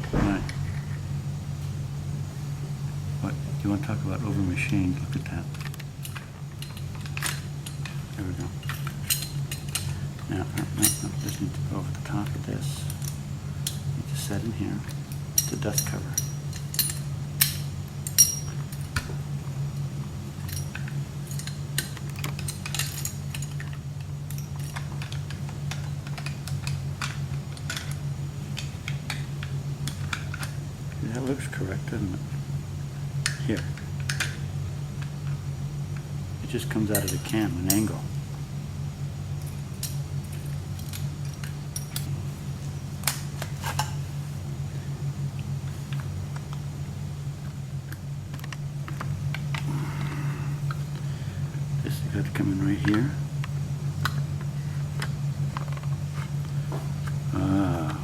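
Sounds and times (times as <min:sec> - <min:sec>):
steady low hum: 0:00.0 - 0:58.0
rifle parts clicking and clinking: 0:05.5 - 0:08.0, 0:08.6 - 0:10.0, 0:10.6 - 0:12.0, 0:14.9 - 0:19.0, 0:20.4 - 0:28.0, 0:39.4 - 0:42.1.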